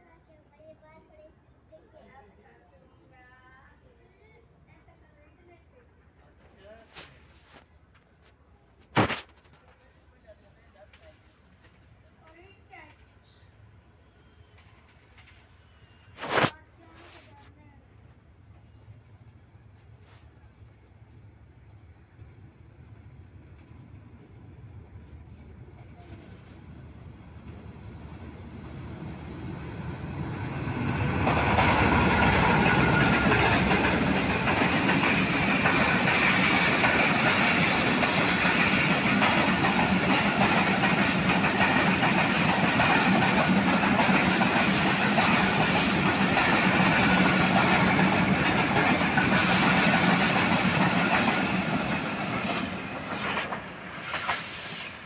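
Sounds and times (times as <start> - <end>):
diesel locomotive passing: 17.8 - 55.0
train wheels clattering on rail joints: 25.0 - 55.0.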